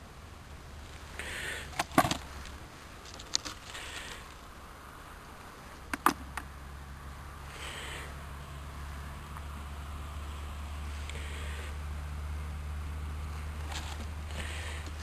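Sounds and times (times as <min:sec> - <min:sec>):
soft scraping or rustling: 0:13.3 - 0:15.0.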